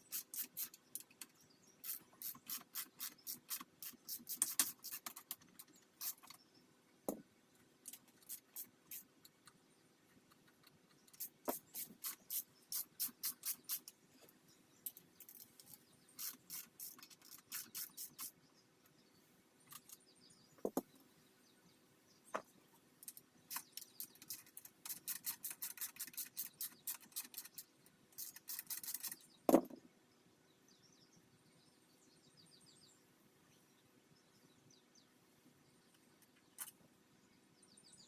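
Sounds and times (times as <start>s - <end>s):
sharp small tool clicks: 0.1s - 6.4s, 10.4s - 14.0s, 23.0s - 29.2s.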